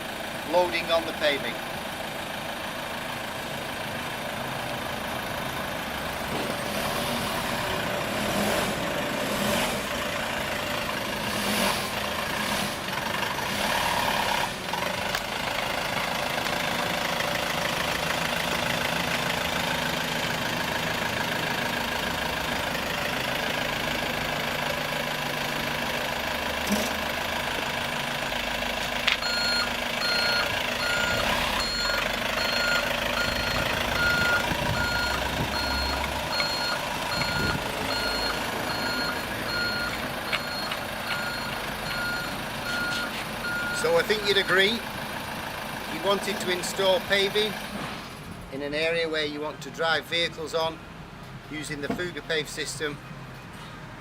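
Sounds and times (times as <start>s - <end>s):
truck engine running: 0.0s - 48.9s
reversing beeper: 29.2s - 44.8s.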